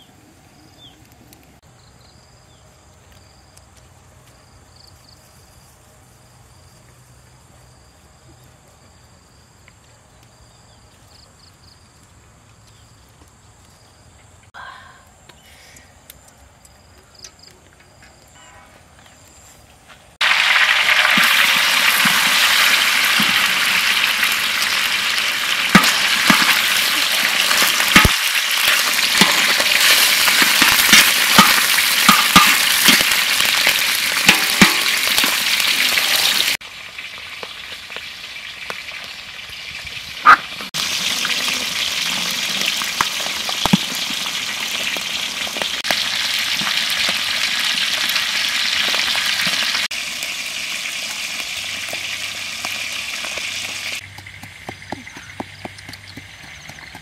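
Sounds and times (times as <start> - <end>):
fish frying in hot oil: 20.2 - 54.7.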